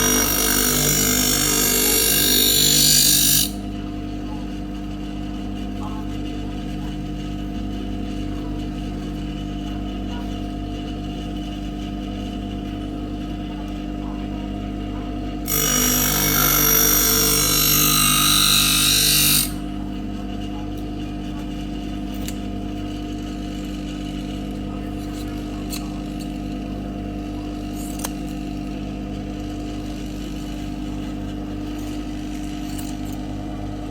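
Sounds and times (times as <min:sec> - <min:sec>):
blade grinding on wheel: 0:00.0 - 0:03.6, 0:15.5 - 0:19.6, 0:29.2 - 0:33.9
sharpening machine motor humming: 0:00.0 - 0:03.8, 0:15.4 - 0:20.7, 0:21.4 - 0:33.9.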